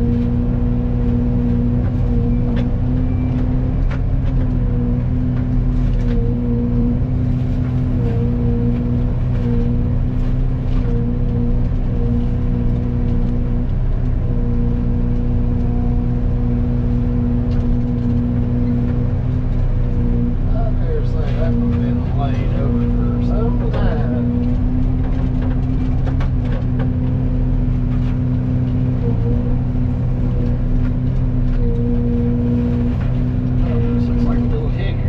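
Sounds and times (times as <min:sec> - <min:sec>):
excavator mulcher machine hum: 0:00.0 - 0:35.0.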